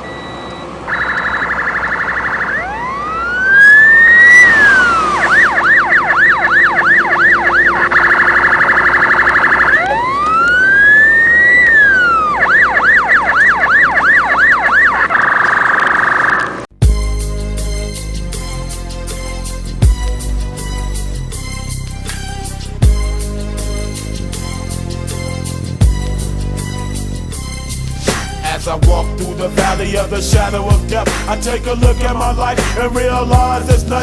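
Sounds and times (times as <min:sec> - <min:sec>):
emergency vehicle siren: 0:00.6 - 0:16.7.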